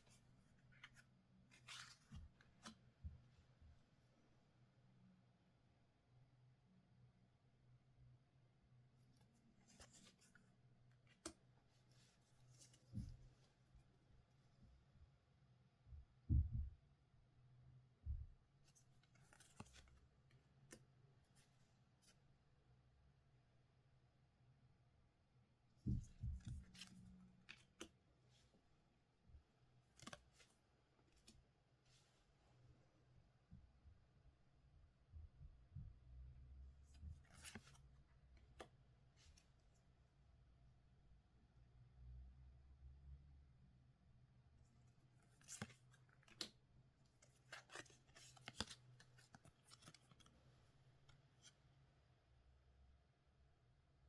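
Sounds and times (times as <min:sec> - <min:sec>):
cards clicking and rustling: 0:19.0 - 0:20.0, 0:26.4 - 0:28.0, 0:30.0 - 0:30.5, 0:37.3 - 0:37.8, 0:45.2 - 0:46.6, 0:47.2 - 0:50.3.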